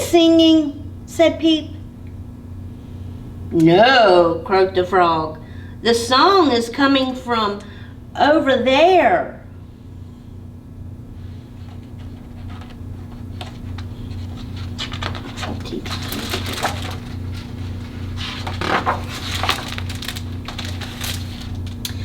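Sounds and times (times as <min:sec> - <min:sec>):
low pulsing hum: 0:00.0 - 0:22.0
book pages turning: 0:11.5 - 0:21.8
paper rustling and crackling: 0:11.5 - 0:21.9.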